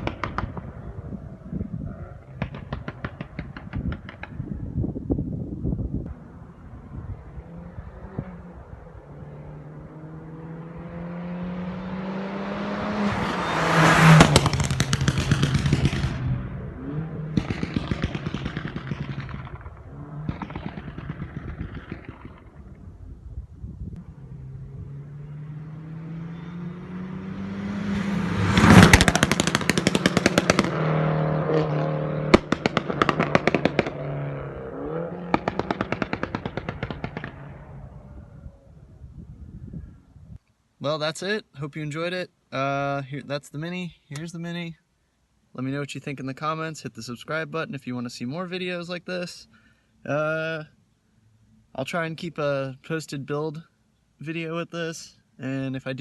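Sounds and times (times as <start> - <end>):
exhaust crackling and popping: 0.0 - 4.8, 13.2 - 24.2, 28.4 - 39.1
car exhaust revving: 6.0 - 23.2, 23.8 - 39.0.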